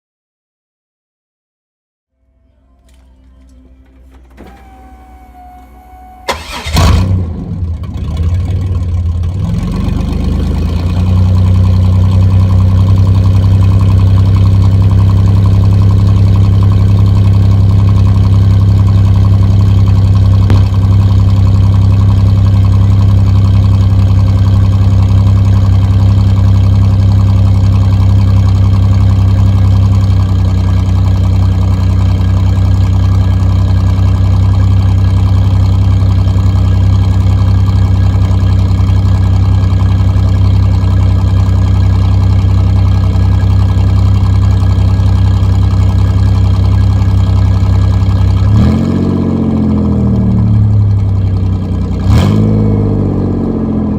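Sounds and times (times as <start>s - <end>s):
car engine starting and idling: 2.2s - 53.9s.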